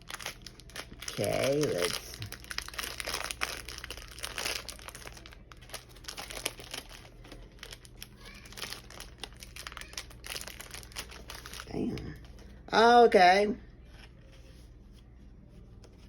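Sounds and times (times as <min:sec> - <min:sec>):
plastic wrapper crinkling: 0:00.0 - 0:12.6.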